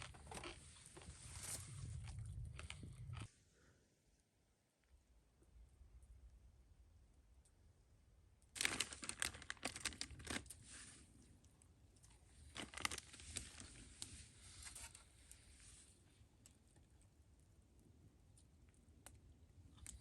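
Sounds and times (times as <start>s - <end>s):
crinkling and rustling: 0.0s - 3.3s, 8.6s - 17.1s.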